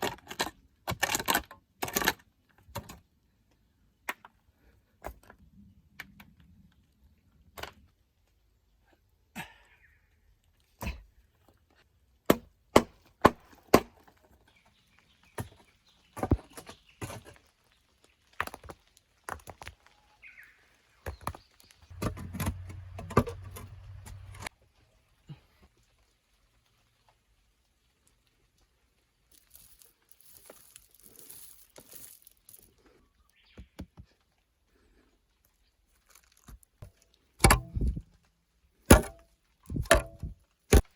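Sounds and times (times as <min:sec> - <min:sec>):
faint rustling and scraping: 0:21.6 - 0:37.3
hand tool striking hard material: 0:38.9 - 0:39.2.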